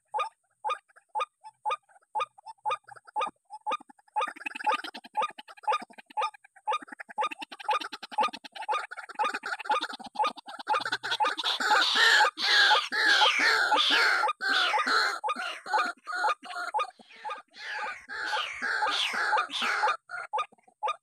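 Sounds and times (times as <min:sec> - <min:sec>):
waterhen calling: 0:10.7 - 0:21.0.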